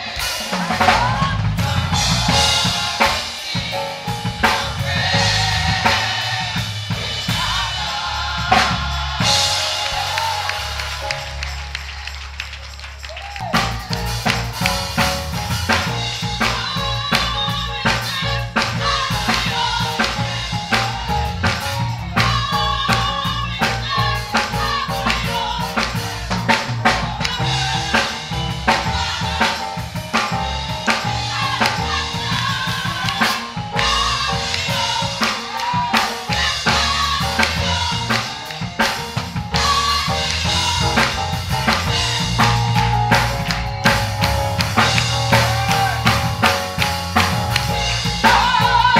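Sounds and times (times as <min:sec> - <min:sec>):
drum kit beat: 0:00.0 - 0:12.3, 0:13.2 - 0:48.9
bass line: 0:00.0 - 0:48.9
gospel band music: 0:00.0 - 0:48.9.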